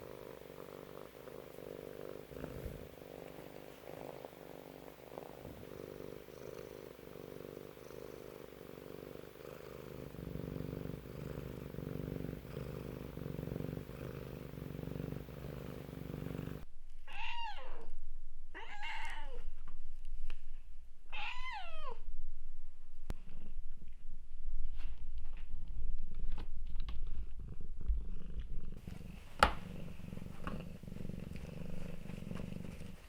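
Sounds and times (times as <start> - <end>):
cat purring: 0.0 - 16.7, 24.7 - 33.0
cat meowing: 17.1 - 19.5, 21.1 - 22.0.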